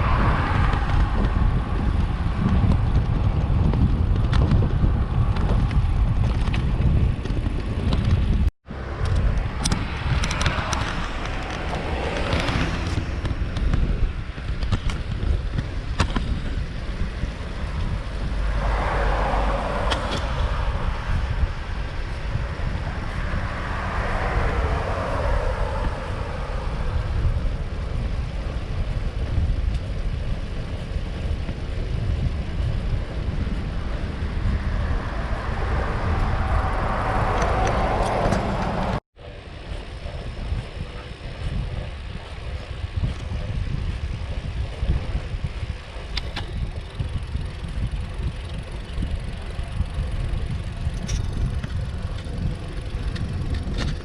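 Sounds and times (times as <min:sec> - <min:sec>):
wind buffeting microphone: 0:00.0 - 0:54.0
vehicle passing: 0:08.6 - 0:14.6, 0:16.5 - 0:29.5, 0:30.1 - 0:43.6.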